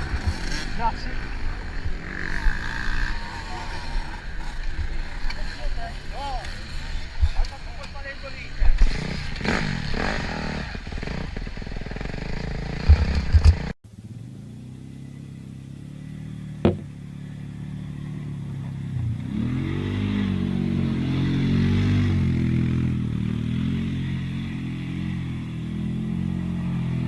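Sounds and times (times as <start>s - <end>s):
motorcycle engine revving: 0.0s - 27.0s
loud knocks: 16.6s - 16.9s.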